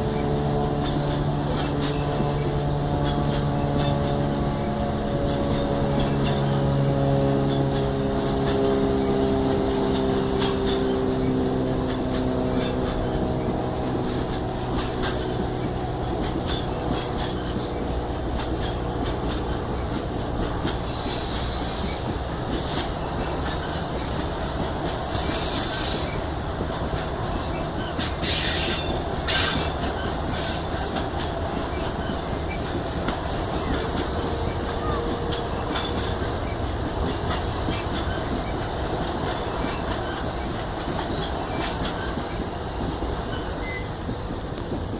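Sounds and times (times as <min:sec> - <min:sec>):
diesel locomotive engine hum: 0:00.0 - 0:44.9
train wheels clicking over joints: 0:00.0 - 0:44.9
high wheel squeals: 0:20.7 - 0:24.2, 0:25.0 - 0:26.4, 0:27.0 - 0:44.0.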